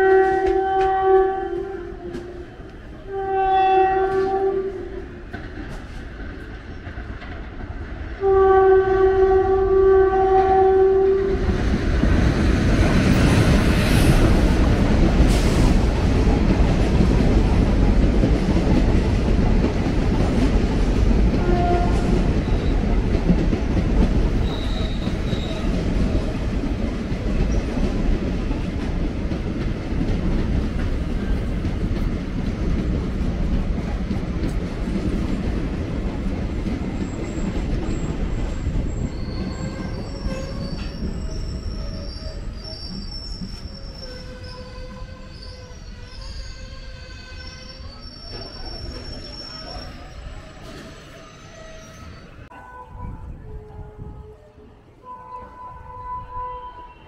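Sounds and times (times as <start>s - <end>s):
train wheels rushing on rails: 0.0s - 52.5s
high wheel squeal: 24.4s - 25.7s, 37.0s - 52.4s.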